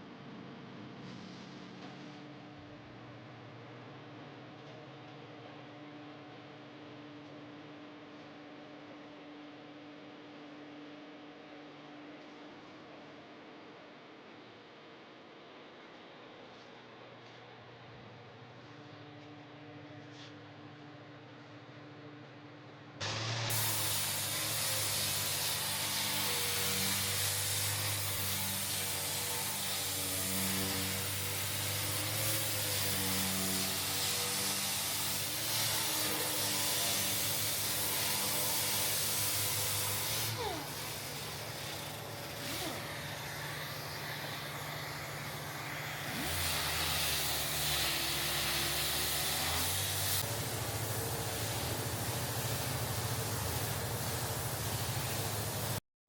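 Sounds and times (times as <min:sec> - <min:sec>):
air sander on metal: 0:23.0 - 0:55.8.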